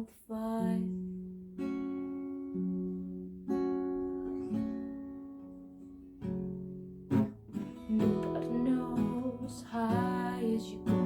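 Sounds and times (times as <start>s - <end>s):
acoustic guitar strumming chords: 0.6s - 11.0s.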